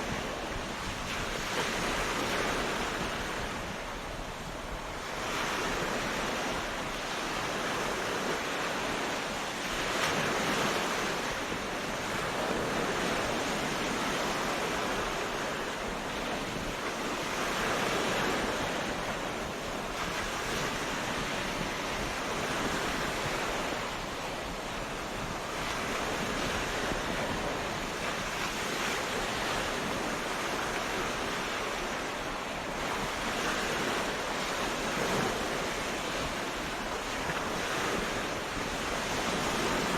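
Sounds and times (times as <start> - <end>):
surf breaking on beach: 0.0 - 39.9.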